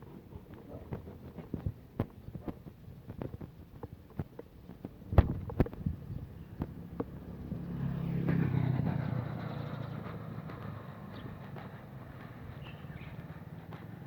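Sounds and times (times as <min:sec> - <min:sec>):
motor vehicle passing: 0:06.0 - 0:14.0.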